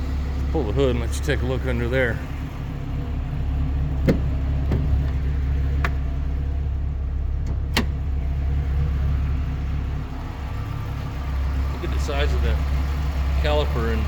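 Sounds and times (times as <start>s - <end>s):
car engine idling: 0.0s - 14.0s
hood latch clicks and clunks: 4.0s - 6.2s, 7.4s - 8.1s.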